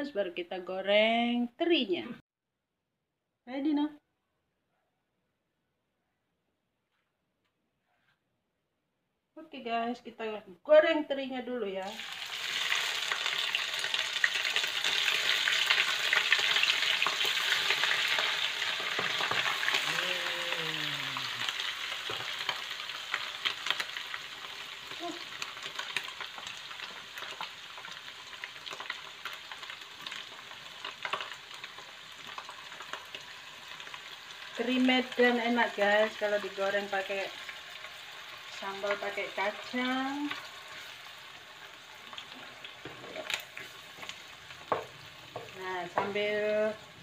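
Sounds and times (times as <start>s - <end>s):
fish sizzling in hot oil: 11.9s - 47.0s.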